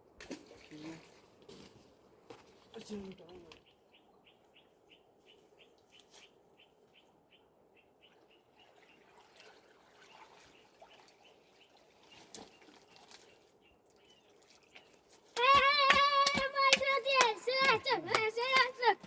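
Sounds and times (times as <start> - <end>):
faint bird chirping: 3.4 - 15.2.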